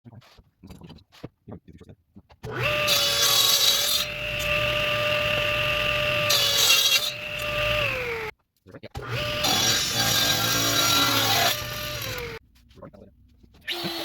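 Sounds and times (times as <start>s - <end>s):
power tool whining: 2.5s - 8.3s, 9.0s - 12.4s
saw cutting through wood: 2.5s - 8.3s, 9.0s - 12.4s, 13.6s - 14.0s.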